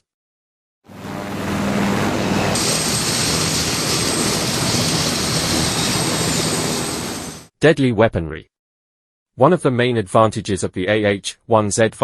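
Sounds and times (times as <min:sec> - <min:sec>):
helicopter engines and rotor: 0:00.9 - 0:07.5
high turbine whine: 0:00.9 - 0:07.5.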